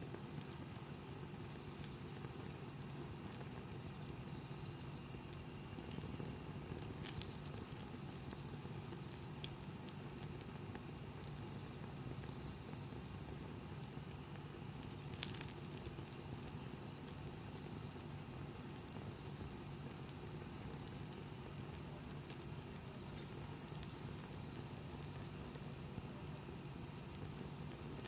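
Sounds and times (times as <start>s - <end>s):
campfire burning: 0.0s - 28.0s
burning wood popping: 4.8s - 12.6s, 14.4s - 25.6s.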